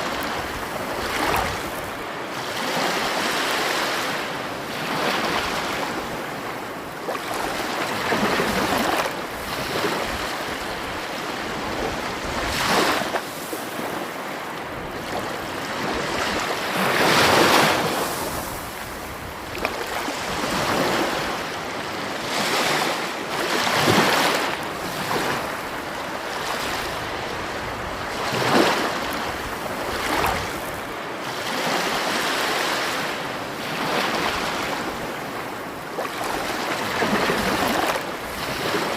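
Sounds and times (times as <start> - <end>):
sea waves breaking: 0.0 - 38.9.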